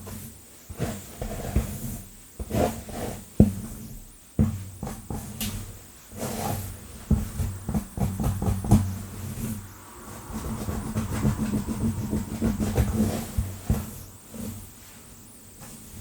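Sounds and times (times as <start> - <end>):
low steady hum: 6.7 - 15.3.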